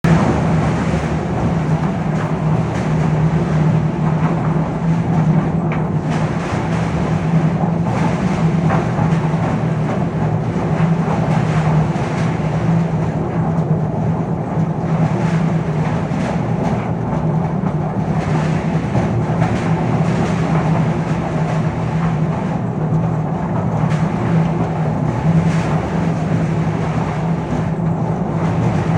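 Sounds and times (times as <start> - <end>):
diesel engine running: 0.0 - 5.4.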